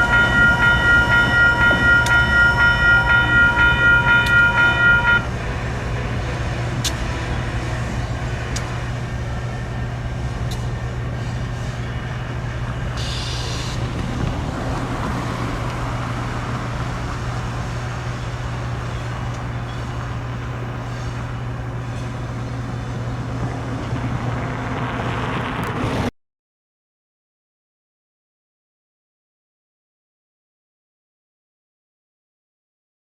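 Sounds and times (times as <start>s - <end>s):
freight train running: 0.0s - 26.1s.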